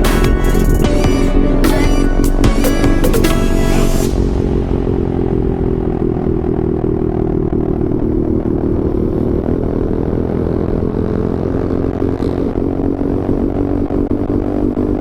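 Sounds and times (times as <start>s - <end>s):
motorcycle engine running: 4.1s - 15.0s.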